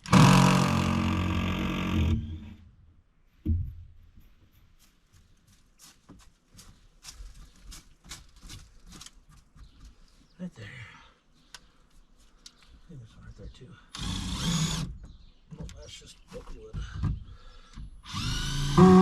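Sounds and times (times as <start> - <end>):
power drill running: 0.0 - 2.6, 13.9 - 14.9, 18.0 - 19.0.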